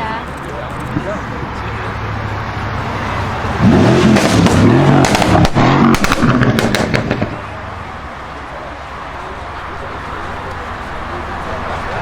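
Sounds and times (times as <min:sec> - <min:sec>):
car engine idling and revving: 0:00.0 - 0:12.0
exhaust crackles and pops: 0:03.6 - 0:07.6.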